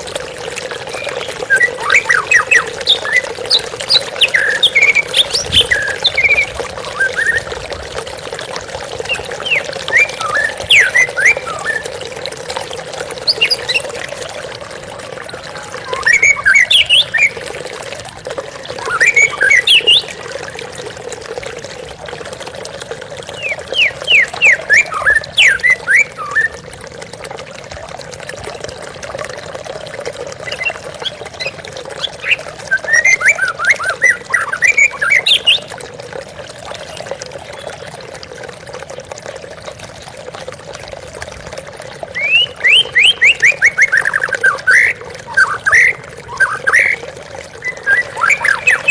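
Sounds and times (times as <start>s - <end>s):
running water: 0.0s - 48.9s
bird chirping and whistling: 0.9s - 7.5s, 9.1s - 11.8s, 15.8s - 17.4s, 18.8s - 20.2s, 23.4s - 26.6s, 32.2s - 35.7s, 42.2s - 47.0s, 47.6s - 48.9s.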